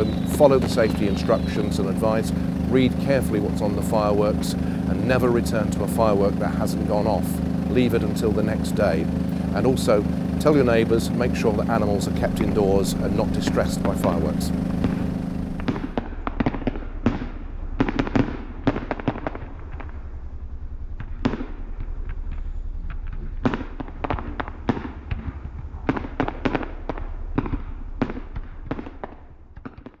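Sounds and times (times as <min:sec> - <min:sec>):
fireworks bangs and crackles: 0:00.0 - 0:15.9
steady low rumble: 0:00.0 - 0:16.0.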